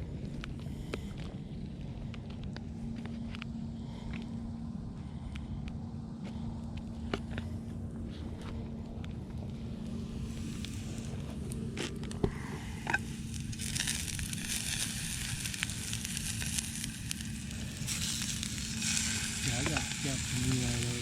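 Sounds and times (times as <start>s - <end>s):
food sizzling in a frying pan: 12.8s - 21.0s.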